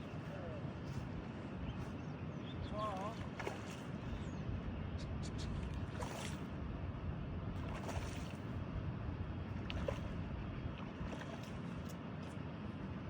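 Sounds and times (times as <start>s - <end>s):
water at the shore: 0.0s - 13.0s
wind rumble on microphone: 0.0s - 13.0s.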